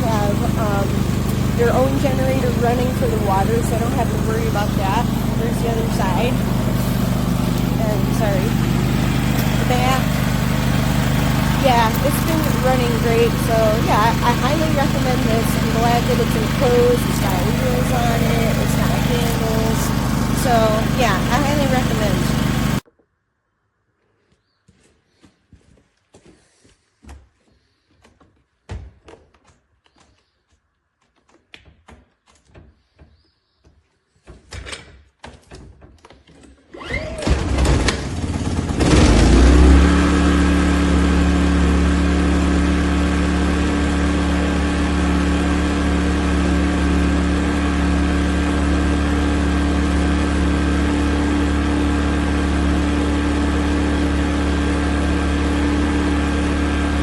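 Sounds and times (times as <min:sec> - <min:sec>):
generator engine starting and running: 0:00.0 - 0:22.8, 0:36.5 - 0:57.0.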